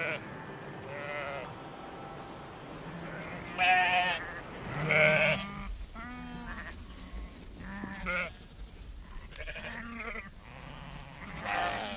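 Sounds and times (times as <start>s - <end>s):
sheep bleating: 0.0s - 0.2s, 0.8s - 8.5s, 9.1s - 11.9s.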